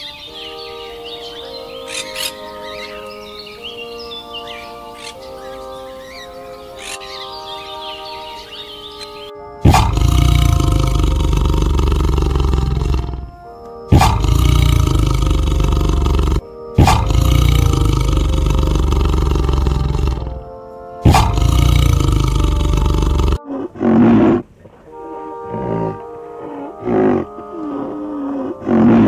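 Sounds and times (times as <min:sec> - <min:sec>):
background music: 0:00.0 - 0:29.0
big cat roaring: 0:09.6 - 0:24.5, 0:25.4 - 0:29.0.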